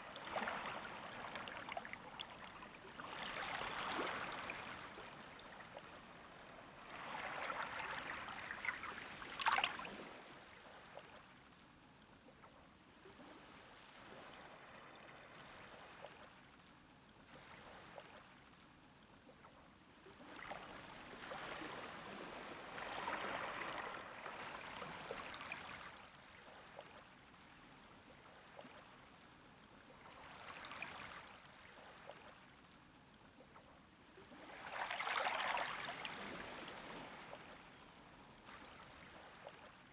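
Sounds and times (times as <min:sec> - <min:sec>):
small waves washing onto beach: 0:00.0 - 0:10.4, 0:34.2 - 0:39.9.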